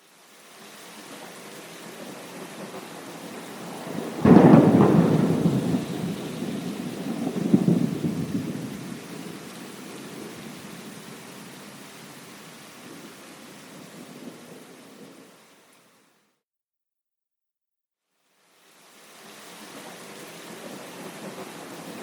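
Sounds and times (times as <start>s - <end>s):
steady rain: 0.0s - 16.3s, 18.1s - 22.0s
thunder crack and rumble: 2.6s - 11.6s.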